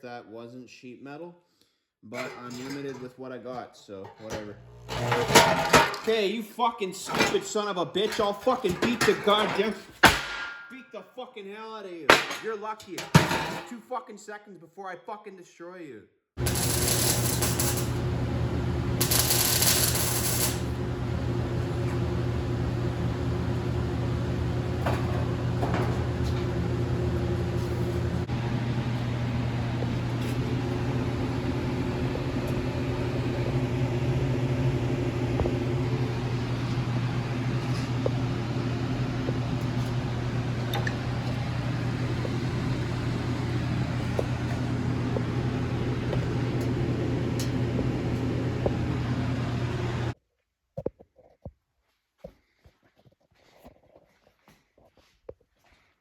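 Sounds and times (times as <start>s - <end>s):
low machine hum: 4.2s - 6.1s, 16.4s - 50.2s.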